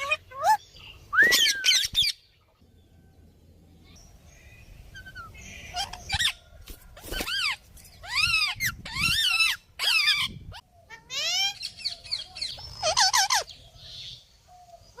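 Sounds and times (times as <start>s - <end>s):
parrot calling: 0.0s - 2.2s, 4.9s - 6.5s, 7.3s - 13.5s.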